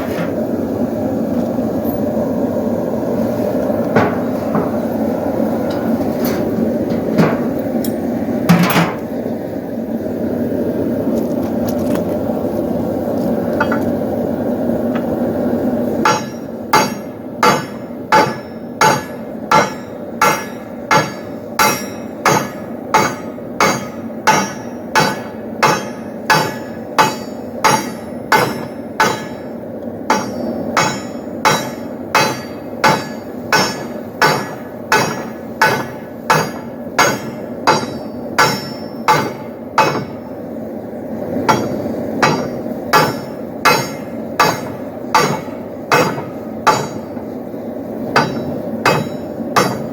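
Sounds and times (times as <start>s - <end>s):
hammer striking steel on anvil: 13.6s - 13.9s, 16.0s - 40.3s, 41.4s - 47.4s, 48.1s - 49.9s.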